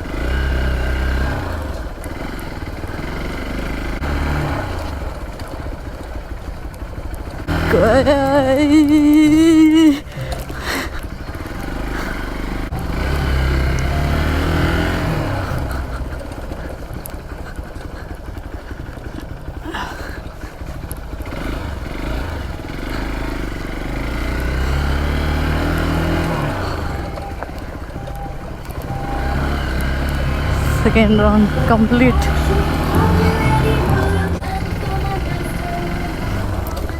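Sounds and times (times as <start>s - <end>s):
dirt bike engine revving: 0.0s - 36.9s.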